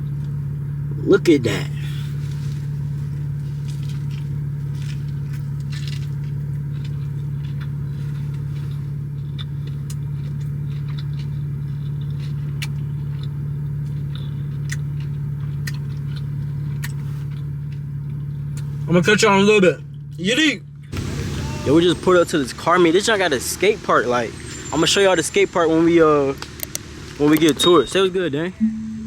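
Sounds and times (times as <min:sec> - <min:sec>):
car cabin drone: 0:00.0 - 0:29.0
rustles: 0:01.8 - 0:18.9.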